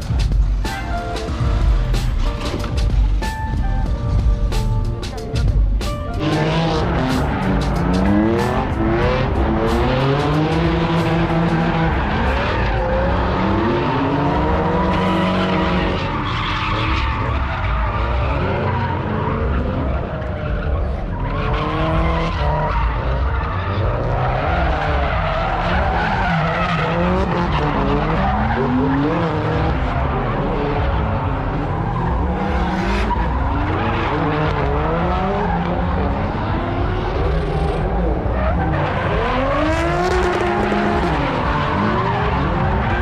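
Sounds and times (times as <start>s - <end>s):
car engines revving hard: 0.0s - 43.0s.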